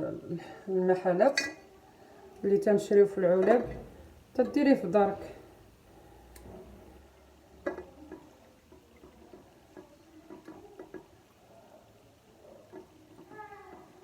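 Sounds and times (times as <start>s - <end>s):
light kitchen clicks and knocks: 3.2s - 7.0s.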